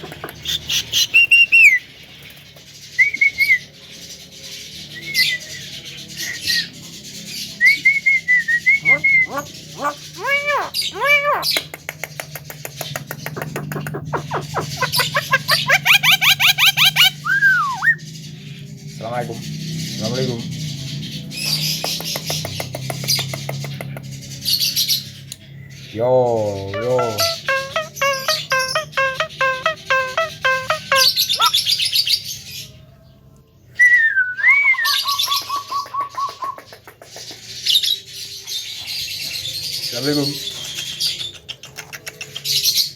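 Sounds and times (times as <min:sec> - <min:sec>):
myna chattering: 0:00.0 - 0:00.7, 0:08.8 - 0:11.6, 0:13.3 - 0:17.1, 0:26.7 - 0:31.6.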